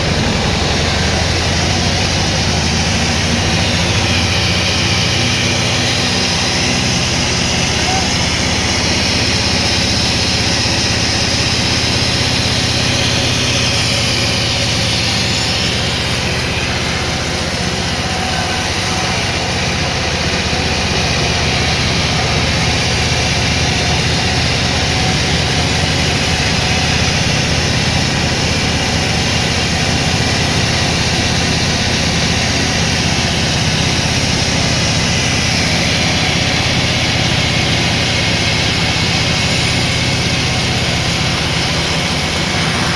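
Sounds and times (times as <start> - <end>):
sawmill machinery drone: 0.0 - 42.9.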